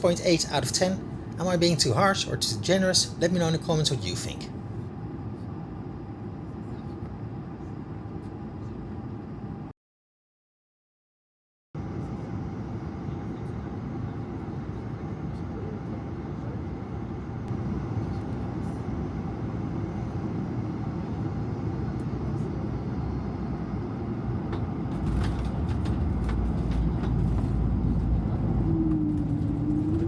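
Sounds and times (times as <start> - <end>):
vehicle engine rumble: 12.0 - 30.0.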